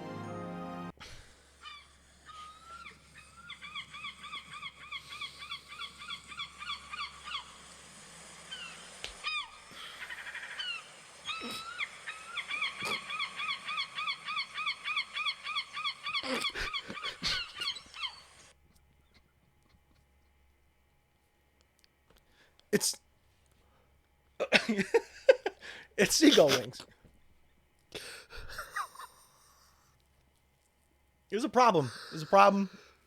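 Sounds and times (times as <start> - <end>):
seagulls calling: 1.6 - 19.3.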